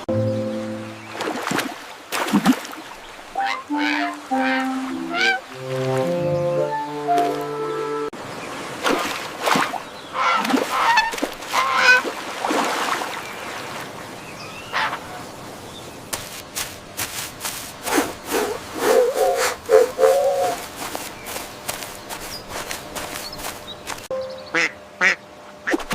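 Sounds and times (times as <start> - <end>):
waterfowl honking: 3.4 - 8.1, 10.1 - 12.1, 14.7 - 15.2, 19.0 - 20.7, 24.4 - 25.2.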